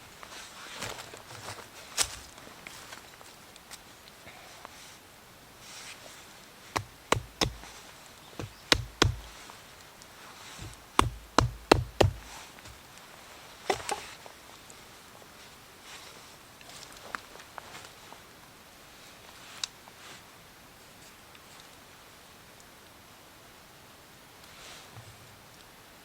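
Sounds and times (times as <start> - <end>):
sharp heavy knocks: 6.8 - 7.7, 8.4 - 9.4, 10.6 - 12.4.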